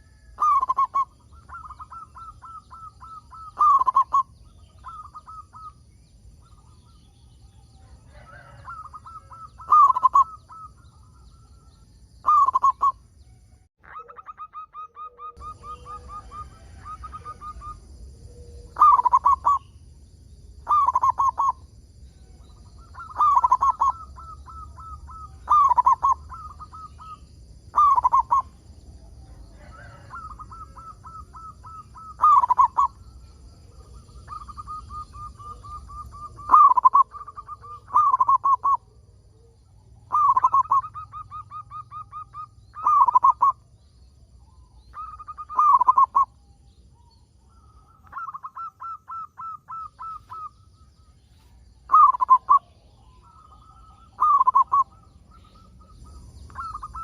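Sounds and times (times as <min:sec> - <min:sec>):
dove cooing: 0:00.0 - 0:13.0, 0:13.8 - 0:19.8, 0:20.6 - 0:43.7, 0:44.4 - 0:57.0.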